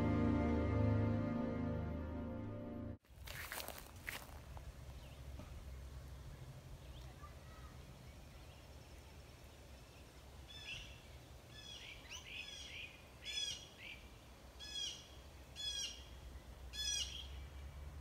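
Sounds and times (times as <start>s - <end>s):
songbird singing: 4.2s - 18.0s.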